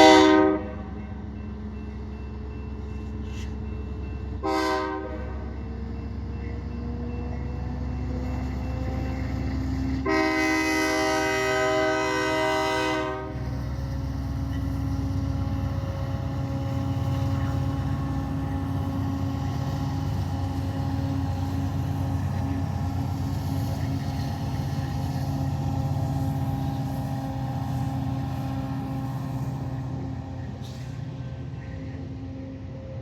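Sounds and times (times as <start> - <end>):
train horn blast: 0.0 - 0.9, 4.4 - 5.5, 9.9 - 13.5
diesel locomotives running: 0.0 - 33.0.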